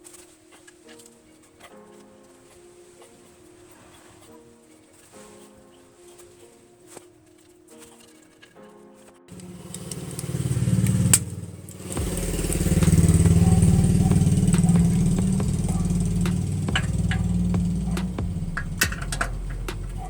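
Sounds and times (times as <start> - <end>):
vehicle engine revving: 9.3 - 20.0.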